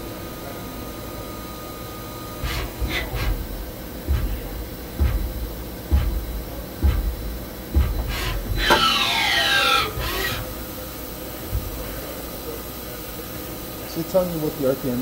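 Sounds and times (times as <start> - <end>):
lathe humming: 1.4 - 15.0
low thud: 2.8 - 8.8.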